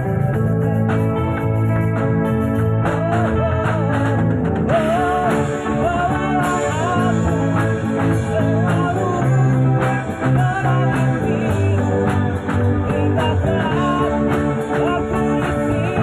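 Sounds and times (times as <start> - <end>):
bass: 0.0 - 16.0
drums: 0.0 - 16.0
guitar: 0.0 - 16.0.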